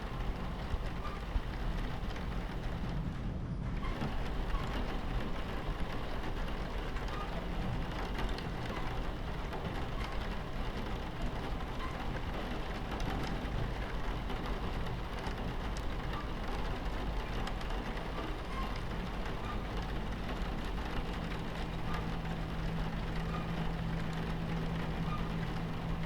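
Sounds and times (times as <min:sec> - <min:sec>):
raindrop ticks: 0:00.0 - 0:03.1, 0:03.8 - 0:26.0
rain on a train window: 0:00.0 - 0:26.0
train rumbling on tracks: 0:00.0 - 0:26.0.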